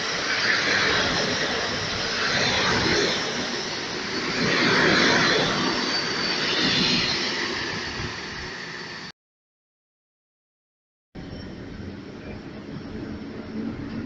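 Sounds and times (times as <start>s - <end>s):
faint high-pitched squeal: 0.0s - 9.0s, 11.2s - 14.0s
train coaches rolling past: 11.2s - 14.0s.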